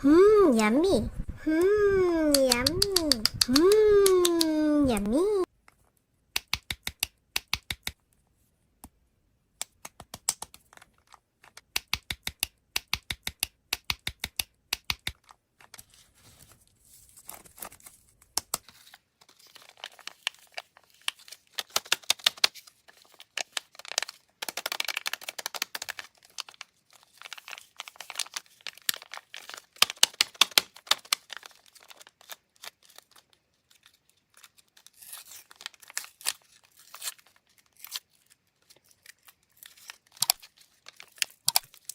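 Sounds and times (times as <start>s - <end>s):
sharp clicks or taps: 2.3s - 5.0s
plastic wrappers tearing and crinkling: 15.2s - 41.9s.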